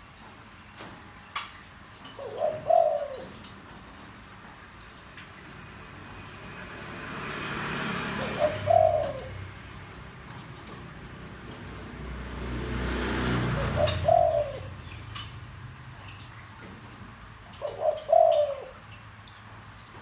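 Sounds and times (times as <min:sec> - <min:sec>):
dove cooing: 0:02.0 - 0:04.4, 0:07.2 - 0:19.0.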